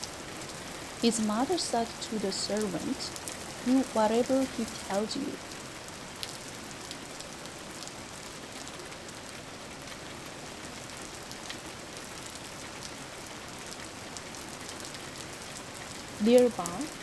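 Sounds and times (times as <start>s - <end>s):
rain drop ticks: 0.0s - 7.9s, 13.7s - 17.0s
steady rain hiss: 0.0s - 17.0s.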